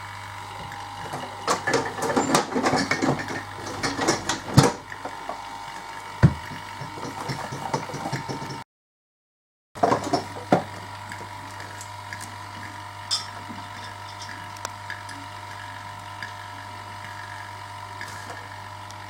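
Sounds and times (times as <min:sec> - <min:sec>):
clicking and rattling of parts: 0:00.6 - 0:05.4, 0:06.2 - 0:08.6
low electrical hum: 0:09.8 - 0:19.0.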